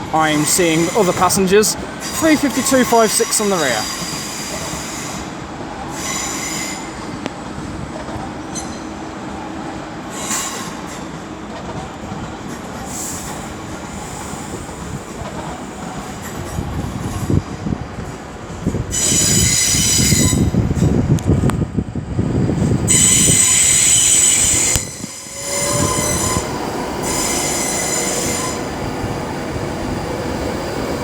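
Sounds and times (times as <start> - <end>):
train wheel flanges squealing: 5.9 - 7.2, 8.5 - 9.0, 18.9 - 20.9, 22.9 - 28.8.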